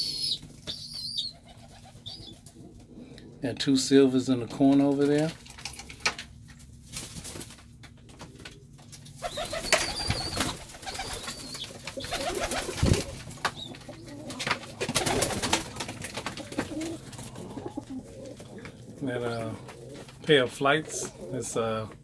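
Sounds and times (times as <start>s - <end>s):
pigeons cooing: 0.0s - 3.4s, 8.2s - 22.0s
birds scuffling and clicking: 4.4s - 22.0s.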